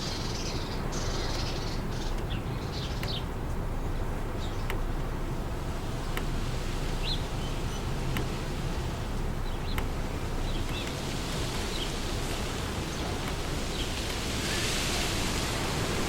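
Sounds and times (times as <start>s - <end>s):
wind blowing through trees: 0.0s - 16.0s
faint sharp clicks: 2.0s - 3.6s, 4.4s - 5.1s, 6.0s - 6.4s, 8.0s - 8.4s, 9.2s - 11.7s.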